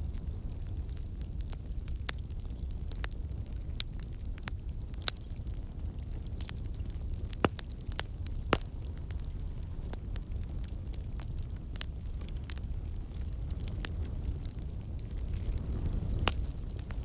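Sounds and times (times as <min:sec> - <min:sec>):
low rumble of flames: 0:00.0 - 0:17.0
wood fire crackling: 0:00.0 - 0:17.0
sharp pops of fire: 0:06.3 - 0:17.0.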